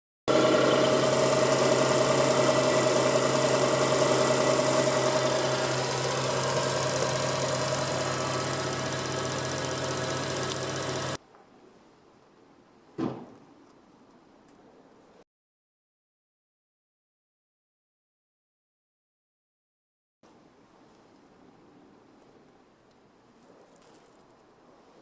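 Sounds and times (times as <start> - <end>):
small car engine idling: 0.3 - 11.2.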